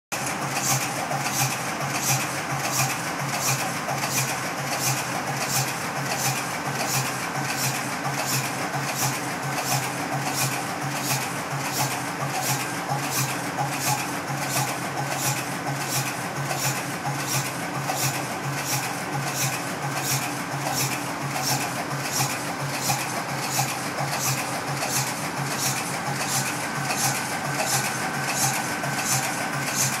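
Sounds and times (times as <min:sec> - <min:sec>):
diesel engine clattering: 0:00.2 - 0:30.0.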